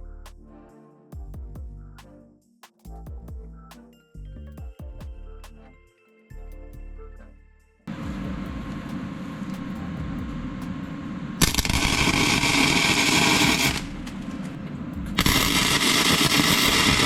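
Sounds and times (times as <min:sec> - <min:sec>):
low steady crackle: 0:07.9 - 0:17.0
arc welding sizzling: 0:10.6 - 0:17.0.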